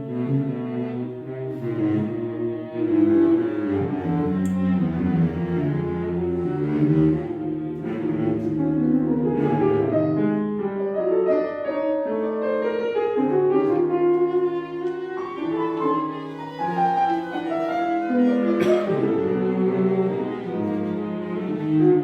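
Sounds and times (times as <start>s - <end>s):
bowed strings: 0.0s - 10.8s, 12.7s - 22.0s
piano: 0.0s - 22.0s
clarinet: 5.2s - 22.0s.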